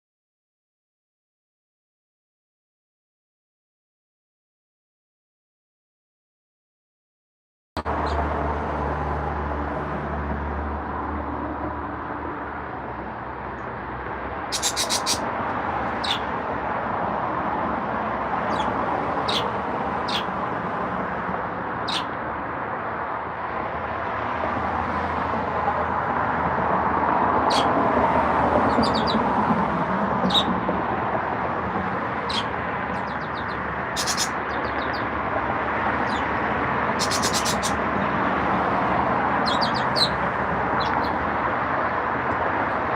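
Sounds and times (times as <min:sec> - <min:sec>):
pet birds chirping: 0:14.4 - 0:15.3, 0:15.9 - 0:16.3, 0:18.4 - 0:20.4, 0:21.8 - 0:22.2, 0:27.4 - 0:27.8, 0:28.6 - 0:29.3, 0:30.2 - 0:30.6, 0:32.0 - 0:35.2, 0:35.9 - 0:38.0, 0:39.3 - 0:41.2.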